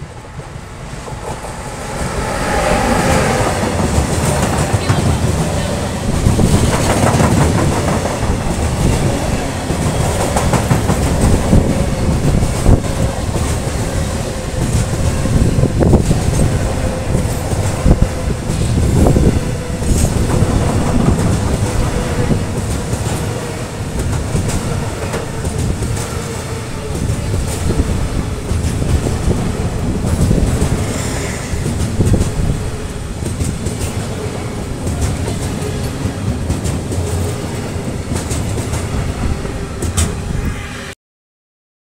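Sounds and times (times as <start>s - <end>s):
freight train rumbling past: 0.0s - 41.0s
wheels clacking over rail joints: 28.4s - 38.9s.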